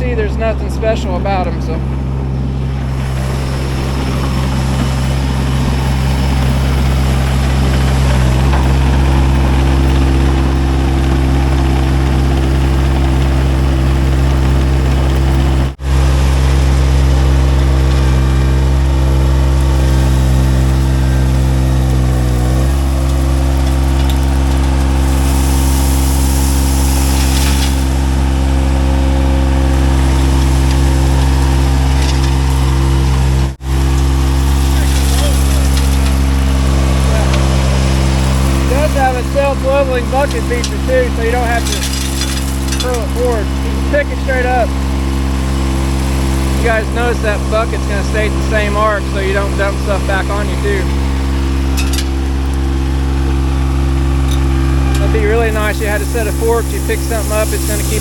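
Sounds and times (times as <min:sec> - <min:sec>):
diesel engine running: 0:00.0 - 0:58.0
hiss: 0:24.9 - 0:28.1, 0:55.5 - 0:58.0.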